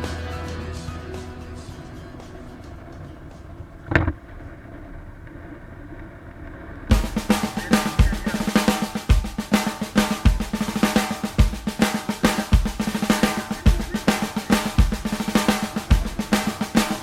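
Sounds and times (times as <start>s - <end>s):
rock song: 0.0s - 3.3s, 6.9s - 17.0s
drum kit rock beat: 0.0s - 4.2s, 6.9s - 17.0s.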